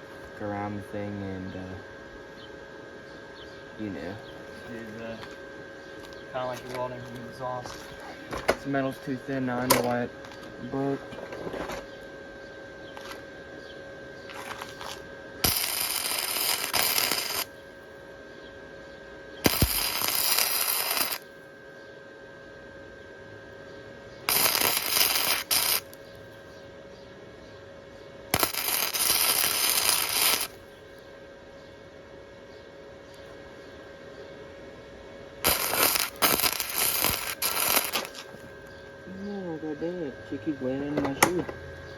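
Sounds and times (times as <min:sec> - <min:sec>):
faint steady hum: 0:00.0 - 0:41.9
welder arc bursts: 0:14.3 - 0:17.6, 0:19.4 - 0:21.3, 0:24.3 - 0:26.0, 0:28.3 - 0:30.7, 0:35.4 - 0:38.5.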